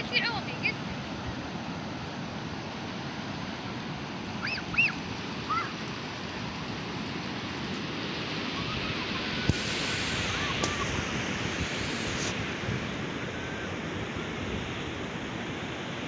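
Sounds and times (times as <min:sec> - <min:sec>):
sea surf washing: 0:00.0 - 0:16.0
short high-pitched calls: 0:08.5 - 0:12.4.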